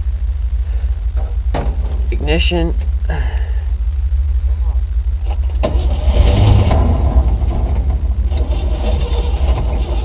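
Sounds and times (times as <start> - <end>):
truck engine cranking and starting: 5.2 - 10.0.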